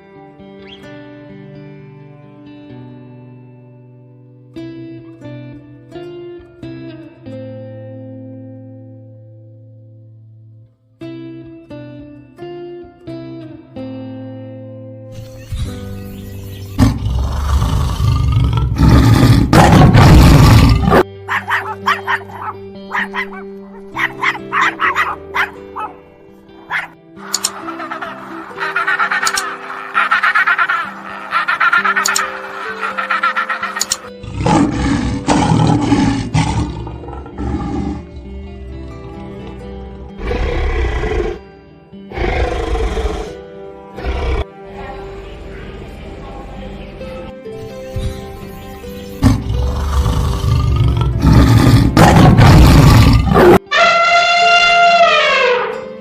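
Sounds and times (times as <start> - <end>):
background music: 0.0 - 56.0
loud harsh animal call: 18.8 - 26.0, 26.6 - 41.4, 49.2 - 55.8
short sharp barking calls: 21.3 - 26.0, 26.6 - 34.1.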